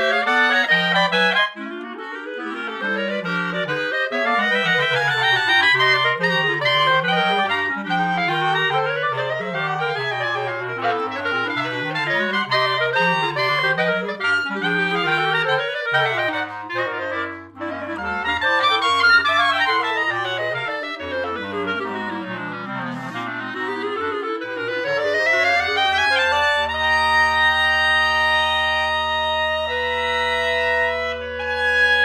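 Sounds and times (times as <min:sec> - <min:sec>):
clarinet quartet playing: 0:00.0 - 0:32.0.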